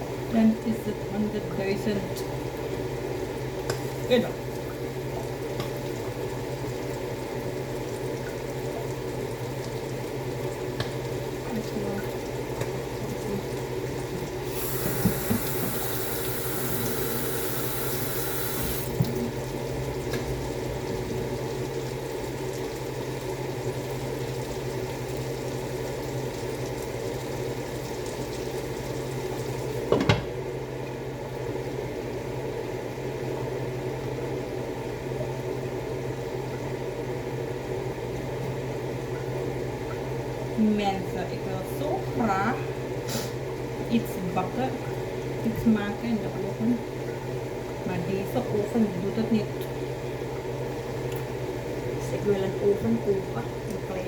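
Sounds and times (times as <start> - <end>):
water tap running: 0.0 - 29.9
low kitchen hum: 0.0 - 54.0.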